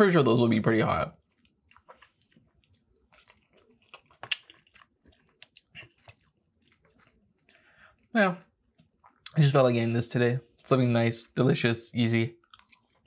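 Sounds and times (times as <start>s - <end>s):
wet chewing and smacking: 1.2s - 9.4s, 12.4s - 13.0s.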